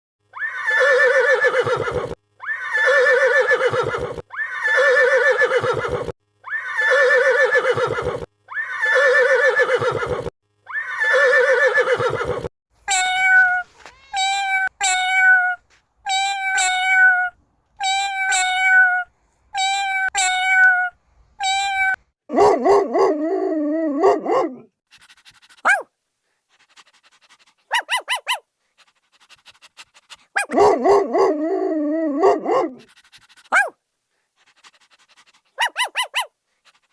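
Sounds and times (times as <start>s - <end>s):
domestic animal calls: 0.3s - 22.0s.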